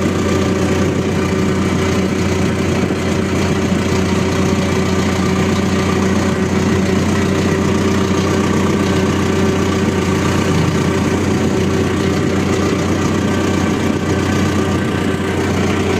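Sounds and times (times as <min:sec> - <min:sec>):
tractor diesel engine idling: 0:00.0 - 0:15.9.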